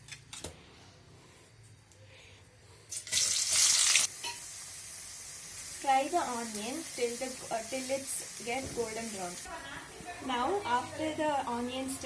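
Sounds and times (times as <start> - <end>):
onion sizzling in hot oil: 2.9 - 9.5.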